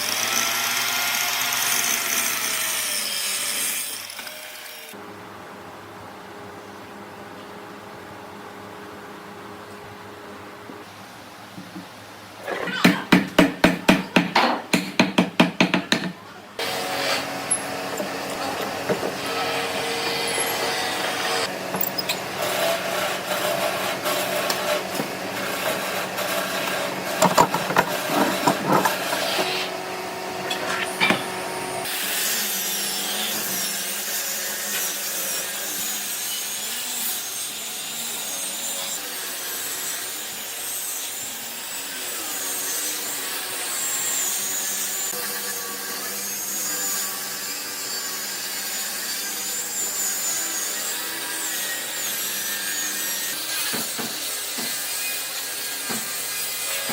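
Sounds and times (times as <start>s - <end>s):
sawing on wood: 12.8s - 56.9s.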